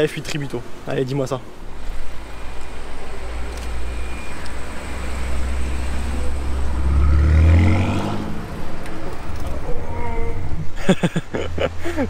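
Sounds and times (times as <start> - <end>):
car engine accelerating: 3.1 - 10.6.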